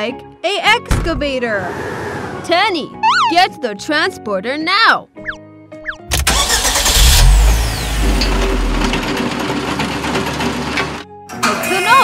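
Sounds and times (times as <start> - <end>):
falling cartoon tones: 3.0 - 3.4
heavy machine engine rumbling: 6.8 - 11.0.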